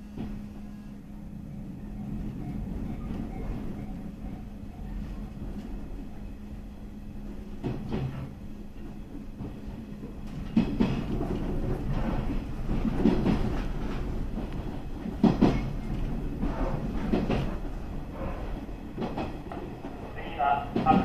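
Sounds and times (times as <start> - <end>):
train rumbling on rails: 0.0 - 21.0
wheels clacking over rail joints: 7.6 - 21.0.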